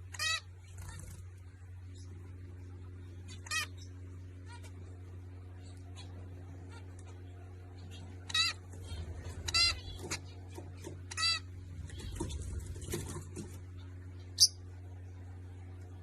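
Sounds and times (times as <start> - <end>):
baby birds calling: 0.0 - 1.2, 3.0 - 14.7
steady low hum: 0.0 - 16.0.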